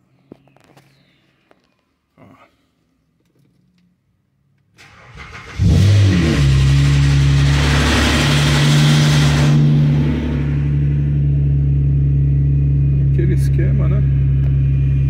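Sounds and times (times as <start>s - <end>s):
engine starter cranking: 4.8s - 9.6s
car engine idling: 4.8s - 15.0s.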